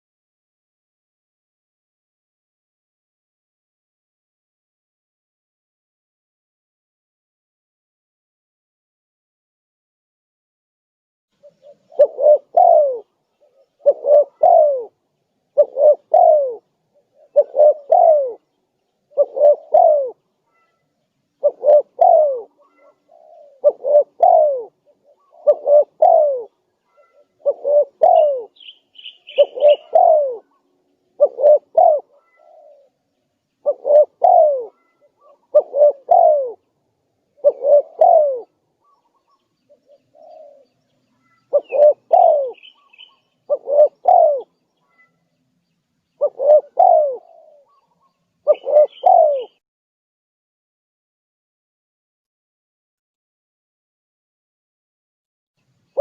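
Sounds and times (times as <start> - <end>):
dove cooing: 11.4 - 33.0, 33.6 - 45.2, 46.2 - 49.6
small bird chirping faintly: 11.4 - 49.6.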